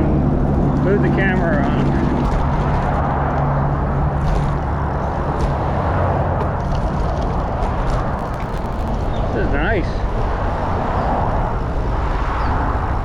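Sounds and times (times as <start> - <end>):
vehicle low hum: 0.0 - 9.4
bicycle rolling noise: 2.1 - 9.2
road traffic: 2.3 - 9.2.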